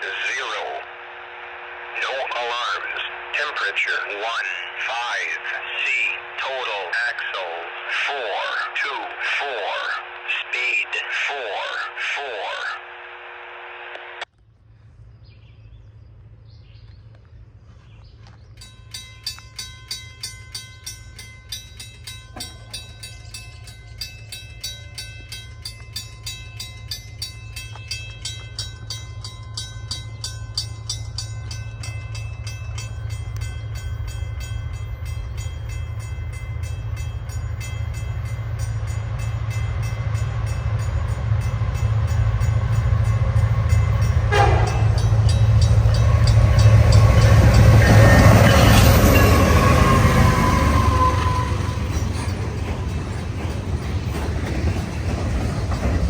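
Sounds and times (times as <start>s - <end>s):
train rumble: 0.0s - 56.0s
level crossing bell ringing: 18.6s - 52.7s.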